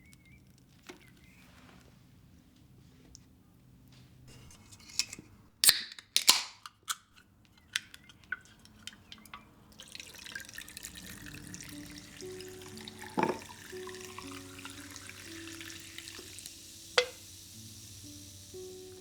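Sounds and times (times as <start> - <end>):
household objects clicking and knocking: 4.3 - 9.5, 13.1 - 13.5
running water hiss: 9.7 - 19.0.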